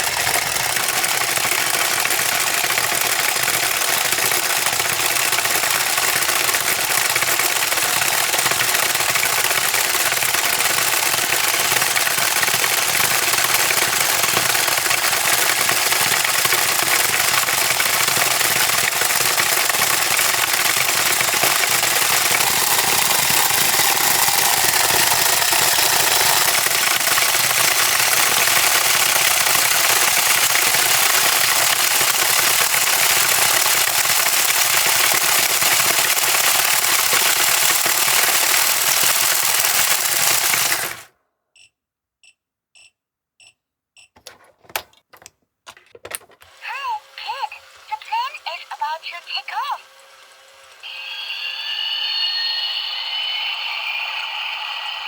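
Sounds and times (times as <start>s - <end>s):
toy motor mechanical buzz: 6.2s - 41.0s, 46.4s - 55.0s.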